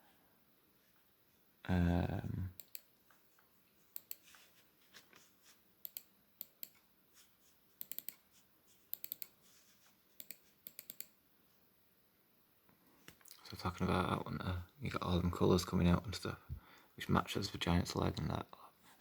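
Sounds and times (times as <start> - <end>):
computer mouse clicking: 2.6 - 2.9, 3.9 - 4.3, 5.8 - 6.9, 7.8 - 8.2, 8.9 - 9.4, 10.2 - 11.2.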